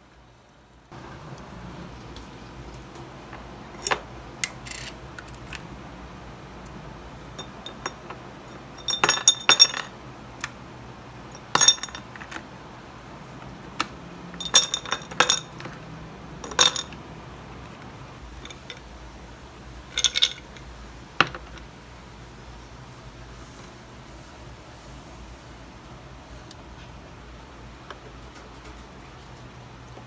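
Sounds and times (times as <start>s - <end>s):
dishes and glassware clinking: 7.4s - 9.9s, 11.3s - 12.4s, 14.4s - 17.0s.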